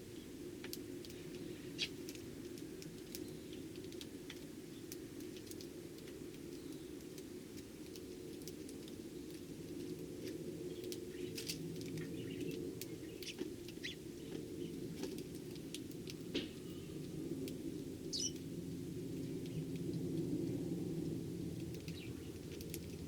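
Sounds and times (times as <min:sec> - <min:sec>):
sparrows chirping: 0:10.7 - 0:14.8, 0:18.1 - 0:18.4, 0:21.8 - 0:22.6.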